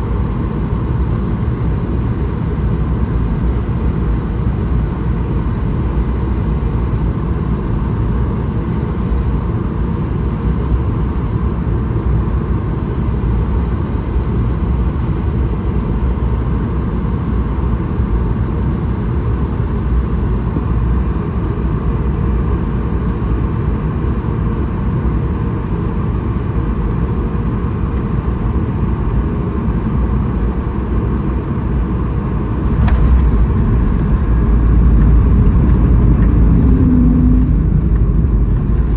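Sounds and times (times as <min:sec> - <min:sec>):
aircraft cabin rumble: 0:20.2 - 0:38.9.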